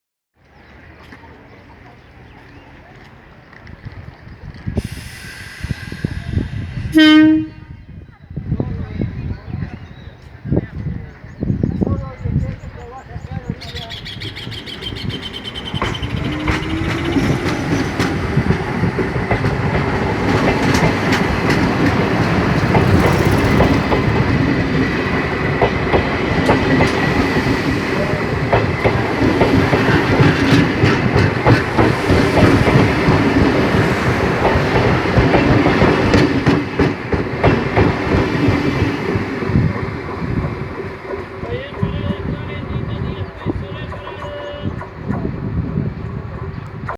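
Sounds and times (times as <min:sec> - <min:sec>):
train rumble: 0:00.5 - 0:46.9
electric train whine: 0:03.5 - 0:07.8, 0:13.6 - 0:46.9
wheels clacking on rail joints: 0:13.4 - 0:46.9.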